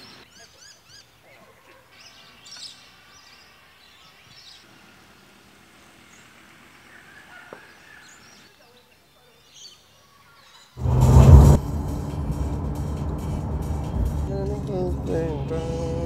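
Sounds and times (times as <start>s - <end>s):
faint outdoor hiss: 0.0s - 10.6s
wild birds calling: 0.0s - 10.8s.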